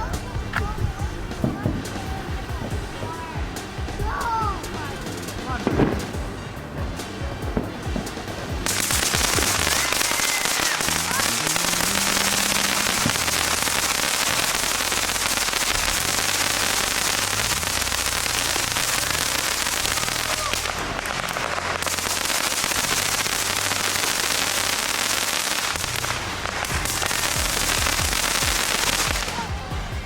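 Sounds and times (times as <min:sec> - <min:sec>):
fireworks crackling: 0:00.0 - 0:30.0.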